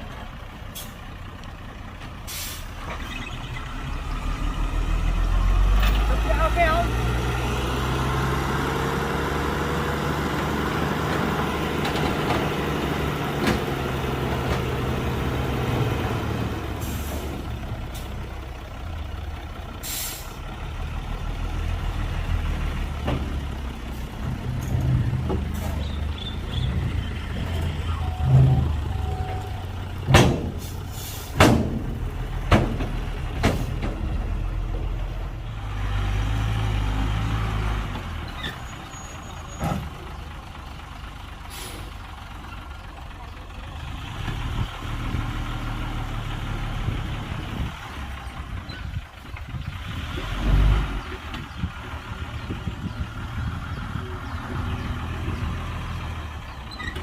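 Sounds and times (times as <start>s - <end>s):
diesel machinery engine drone: 0.0s - 57.0s
metallic knocks and bangs: 30.0s - 30.7s, 31.4s - 34.1s.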